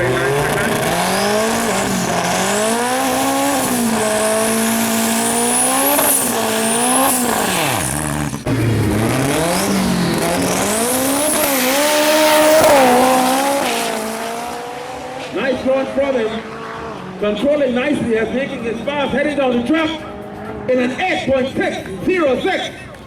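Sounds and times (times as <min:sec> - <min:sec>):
racing engine shifting gears: 0:00.0 - 0:22.1.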